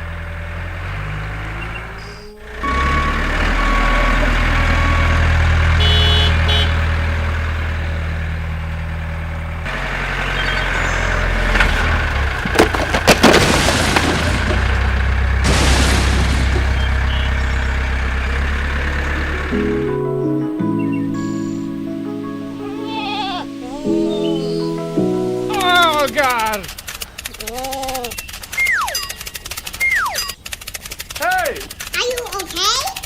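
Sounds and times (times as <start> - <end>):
small tractor engine running: 0.0 - 20.0, 24.4 - 33.0
sharp knocks and clatter: 11.3 - 17.0.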